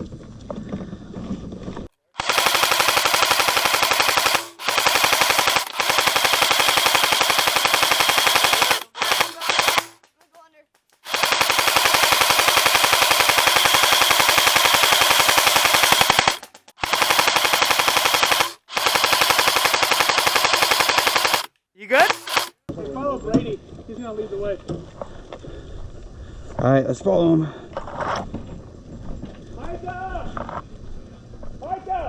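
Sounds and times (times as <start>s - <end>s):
airsoft gun automatic bursts: 2.2s - 10.1s, 11.0s - 22.7s.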